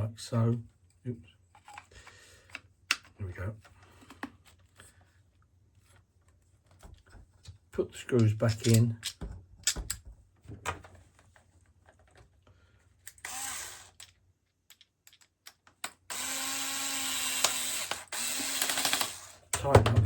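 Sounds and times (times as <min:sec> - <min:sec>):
screws and parts clicking: 0:13.0 - 0:19.4
power screwdriver running: 0:13.2 - 0:14.0, 0:16.1 - 0:19.4.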